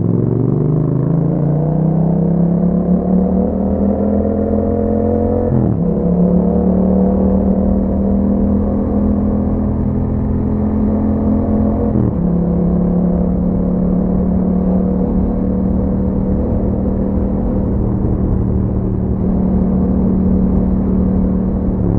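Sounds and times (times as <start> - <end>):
motorcycle engine running: 5.0 - 21.9.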